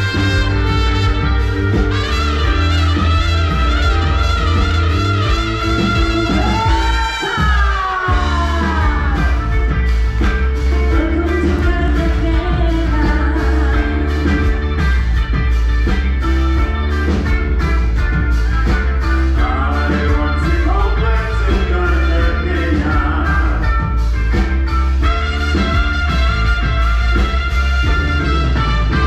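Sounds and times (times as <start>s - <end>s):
loud band music: 0.0s - 29.0s
steady drum beat: 0.0s - 29.0s
person singing: 5.7s - 14.9s, 19.2s - 24.0s.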